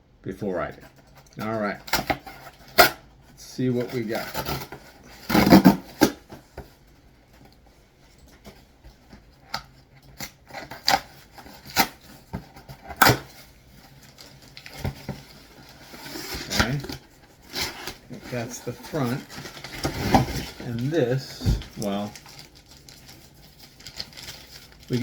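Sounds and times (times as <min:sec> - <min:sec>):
packing rustling: 0:10.5 - 0:25.0.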